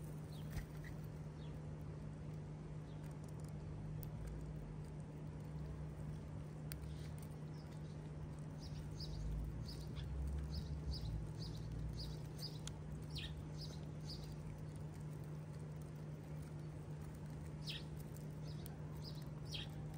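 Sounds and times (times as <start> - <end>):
sparrow chirping: 0.2 - 1.6, 6.8 - 19.9.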